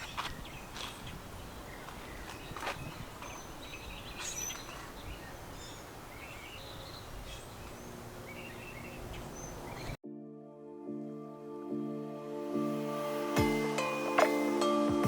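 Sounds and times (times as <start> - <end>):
high bird chirps: 0.0 - 10.0.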